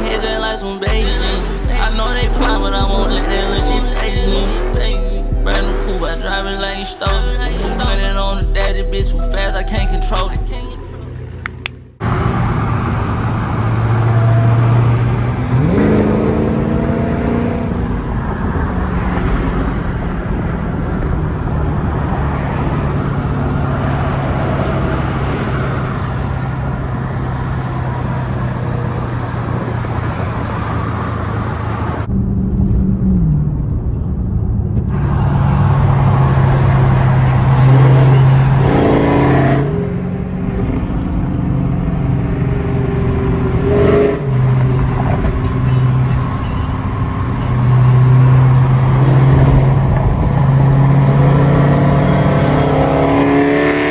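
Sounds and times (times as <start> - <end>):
car engine revving while driving: 0.0 - 10.3, 11.2 - 53.9.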